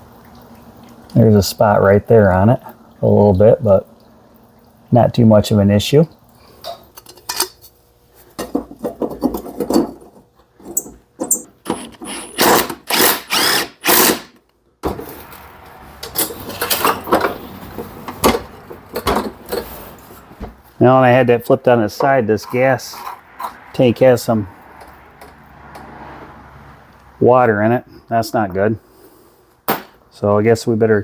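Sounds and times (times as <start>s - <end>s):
tools clanking on a push mower: 16.0s - 19.9s.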